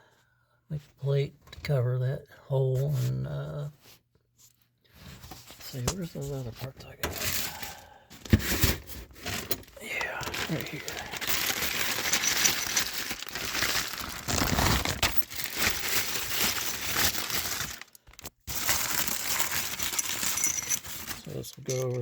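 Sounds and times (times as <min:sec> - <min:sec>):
packaging crinkling: 0:09.2 - 0:21.6.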